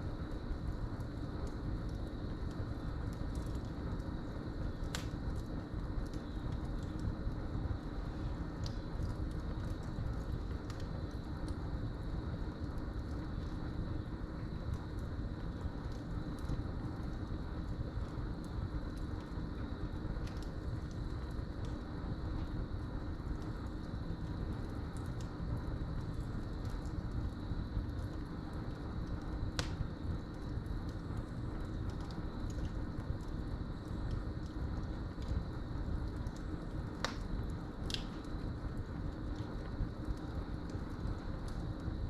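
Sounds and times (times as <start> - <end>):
wood fire crackling: 0.0 - 42.0
sharp pop from fire: 29.6 - 29.8, 37.0 - 37.2.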